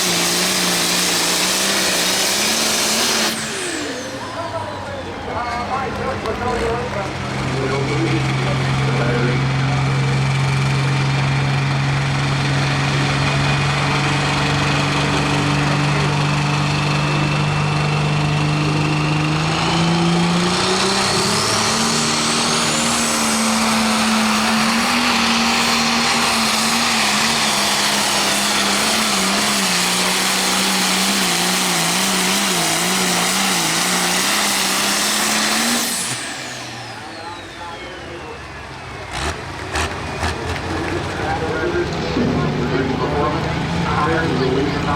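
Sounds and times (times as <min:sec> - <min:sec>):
diesel engine revving: 0:00.0 - 0:44.9.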